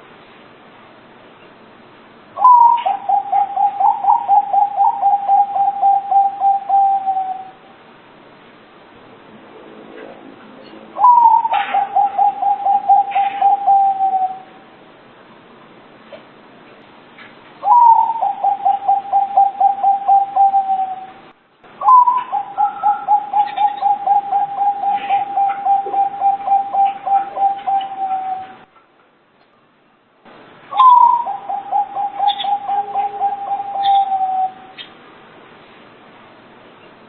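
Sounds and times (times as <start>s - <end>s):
dove cooing: 2.4s - 7.6s, 11.0s - 14.6s, 17.6s - 21.2s, 21.8s - 28.7s, 30.7s - 34.8s.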